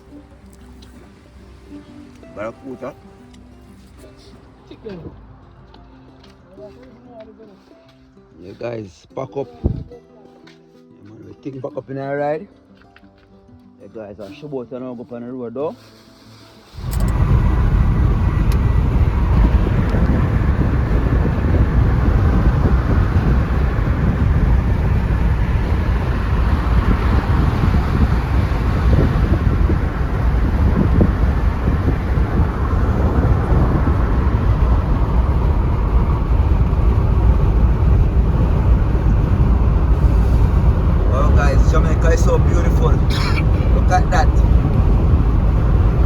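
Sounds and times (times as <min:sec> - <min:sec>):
vehicle road noise: 0:00.0 - 0:08.6, 0:15.8 - 0:46.0
wind rumble on microphone: 0:09.6 - 0:10.0, 0:16.8 - 0:46.0.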